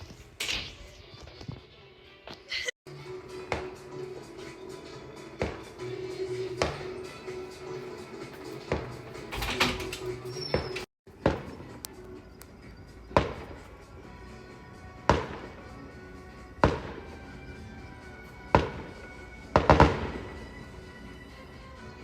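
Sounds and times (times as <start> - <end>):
fireworks banging with echo: 16.6 - 17.1, 18.5 - 20.4.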